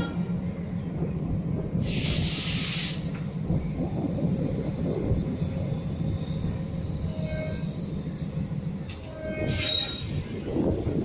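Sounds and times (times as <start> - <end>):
locomotive rumbling: 0.0 - 11.0
air hiss: 1.8 - 3.1
steel wheels squealing on rails: 1.8 - 3.2, 5.2 - 10.8.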